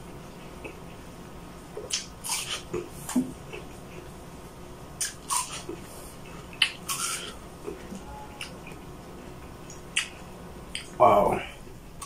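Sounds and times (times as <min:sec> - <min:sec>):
wet crunching and smacking chewing: 0:01.8 - 0:04.1, 0:05.0 - 0:05.9, 0:06.5 - 0:07.8, 0:09.6 - 0:11.0.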